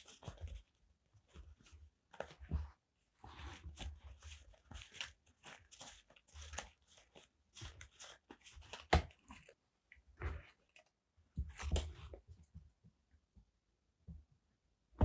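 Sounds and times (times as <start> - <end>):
paper crinkling: 3.7 - 9.6.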